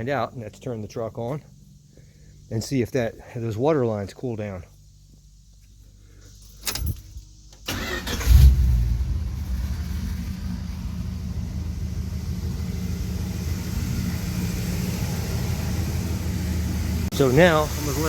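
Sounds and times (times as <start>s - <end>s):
pickup engine starting and idling: 7.6s - 18.0s.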